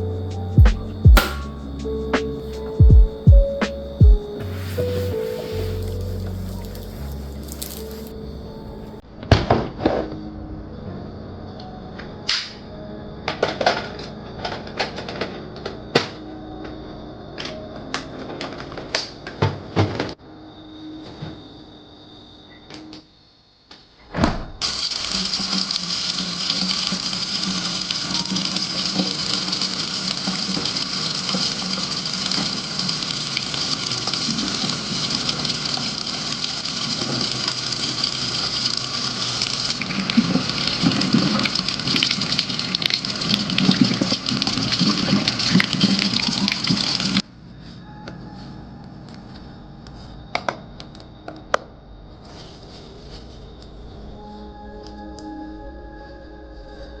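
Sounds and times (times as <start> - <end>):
sharp click: 0.7 - 2.7.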